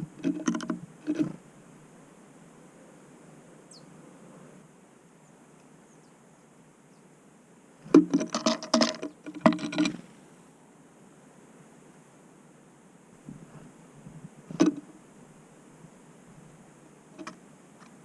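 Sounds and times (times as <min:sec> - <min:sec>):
bird pecking at feeder: 0:17.2 - 0:18.0.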